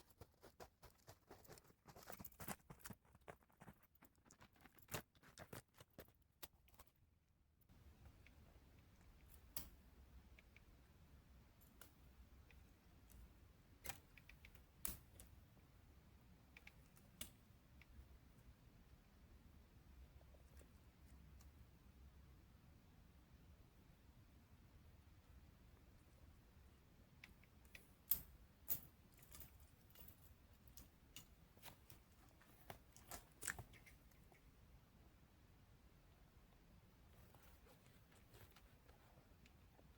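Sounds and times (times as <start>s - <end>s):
sharp clicks and snaps: 27.2s - 34.5s.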